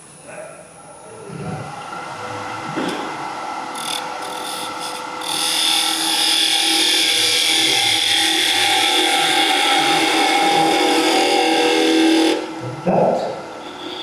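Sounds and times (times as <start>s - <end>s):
wood lathe running: 1.7s - 14.0s
chisel cutting wood on lathe: 2.5s - 12.7s, 13.3s - 14.0s.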